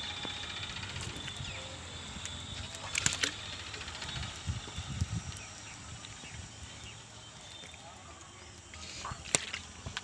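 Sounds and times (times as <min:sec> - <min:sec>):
diesel tractor engine running: 0:00.0 - 0:06.0.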